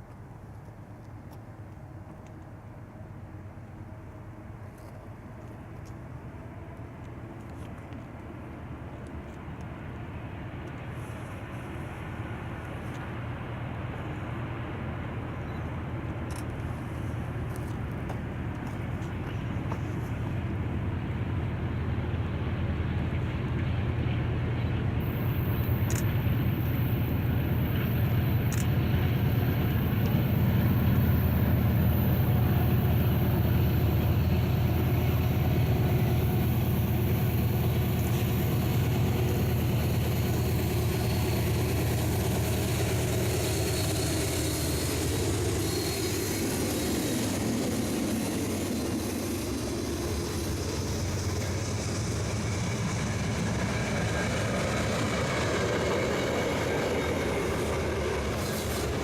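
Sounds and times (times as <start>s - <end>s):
rolling freight cars: 1.0s - 59.0s
locomotive drone: 2.7s - 59.0s.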